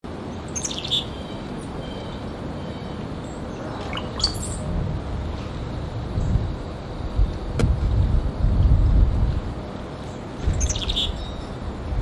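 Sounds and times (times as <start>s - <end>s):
finch chirping: 0.5s - 3.0s, 3.6s - 4.6s, 10.5s - 11.6s
steady low rumble: 1.1s - 10.9s.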